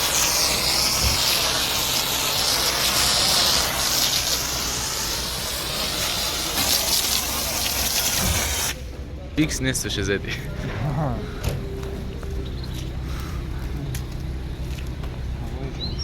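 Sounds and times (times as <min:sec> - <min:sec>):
pressure washer spraying water: 0:00.0 - 0:08.9
low pump hum: 0:10.2 - 0:15.7.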